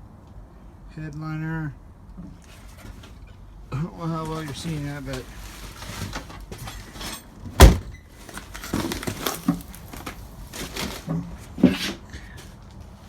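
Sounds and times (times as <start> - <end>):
rustling and handling noise: 2.2 - 13.0
sharp thump: 7.6 - 7.9.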